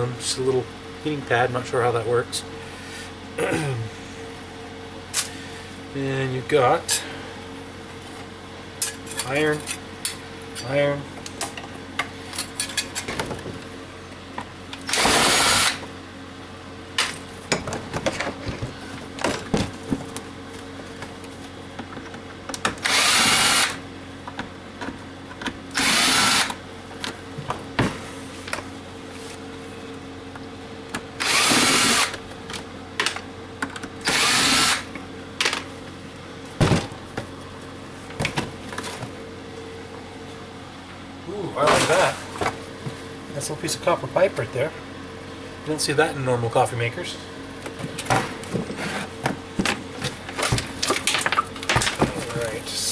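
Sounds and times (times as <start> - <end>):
power drill whirring: 14.9 - 15.8, 22.8 - 23.8, 25.7 - 26.6, 31.2 - 32.2, 34.0 - 34.9.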